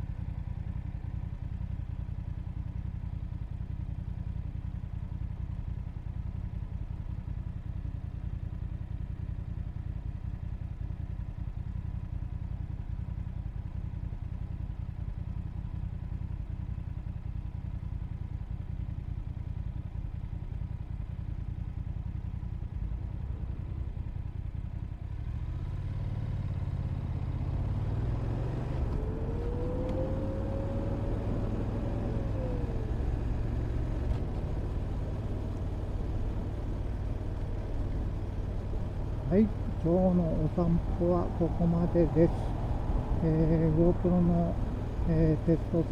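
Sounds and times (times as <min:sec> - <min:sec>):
motorcycle engine running: 0:00.1 - 0:45.9
engine whine: 0:27.7 - 0:45.9.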